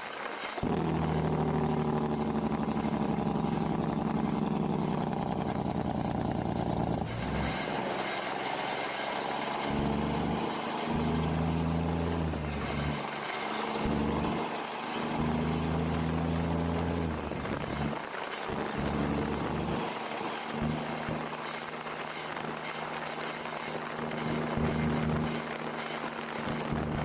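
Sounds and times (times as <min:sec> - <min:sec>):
truck engine under load: 0:00.0 - 0:27.0.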